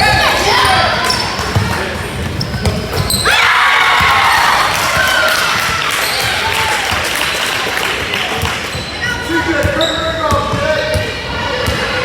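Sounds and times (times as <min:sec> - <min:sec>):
basketball play on court: 0:00.0 - 0:12.0
crowd shouting: 0:03.2 - 0:07.2.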